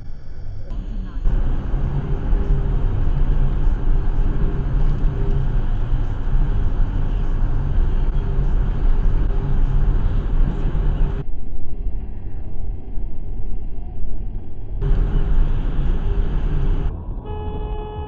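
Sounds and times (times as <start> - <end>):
car engine hum and road noise: 0.7 - 11.2, 14.8 - 18.0.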